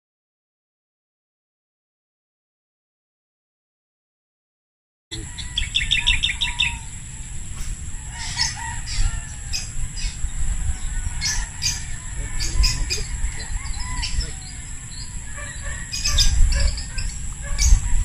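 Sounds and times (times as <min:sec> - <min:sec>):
high-pitched hum: 0:05.1 - 0:18.0
small birds chirping: 0:05.2 - 0:18.0.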